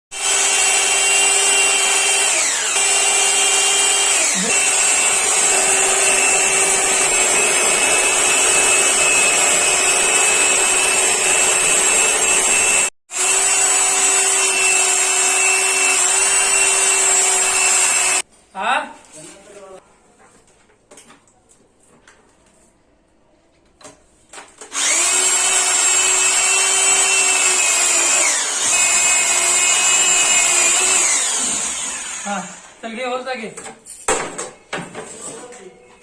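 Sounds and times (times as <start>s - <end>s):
electric drill cutting metal: 0.1s - 18.2s, 24.7s - 32.8s.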